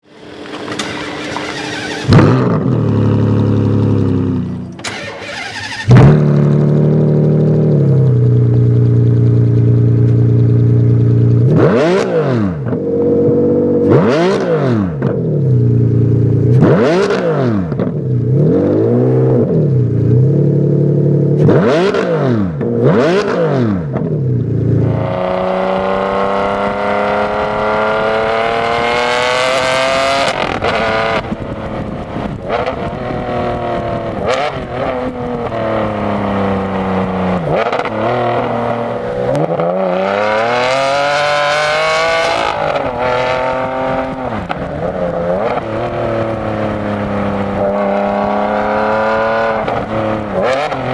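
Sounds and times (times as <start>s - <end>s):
car engine revving: 0.0s - 50.9s
car accelerating through gears: 0.1s - 7.9s, 11.4s - 12.8s, 24.9s - 31.4s, 32.4s - 50.9s.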